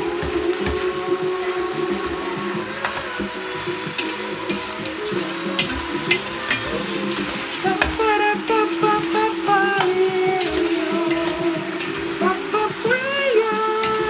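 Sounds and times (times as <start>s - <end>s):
chicken sizzling in a pan: 0.0s - 14.0s
smooth jazz music: 0.0s - 14.0s
utensil clicking against pan: 0.0s - 14.0s.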